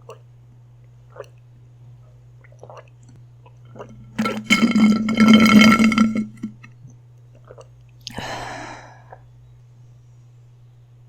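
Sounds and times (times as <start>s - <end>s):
long loud burp: 4.2s - 6.6s.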